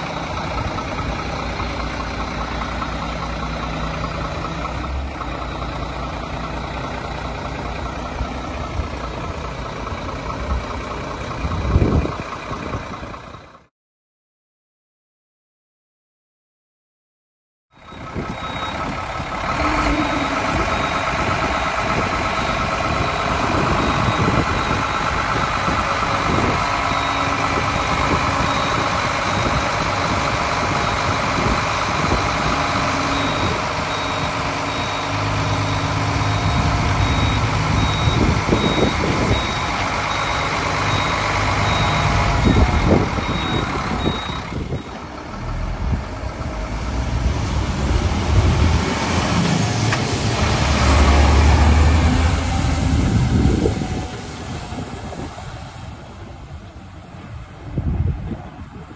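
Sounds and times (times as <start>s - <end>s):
truck engine rumble: 0.0s - 13.7s, 17.7s - 58.9s
reversing alarm beeping: 17.8s - 46.4s.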